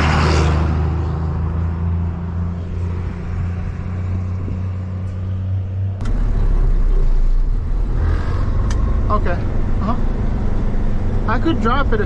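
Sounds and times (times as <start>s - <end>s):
delivery truck engine running: 2.4s - 12.0s.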